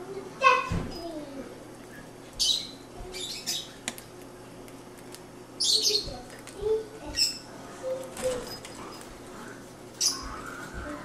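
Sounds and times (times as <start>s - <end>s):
lovebirds chirping: 1.9s - 3.8s, 5.6s - 10.8s.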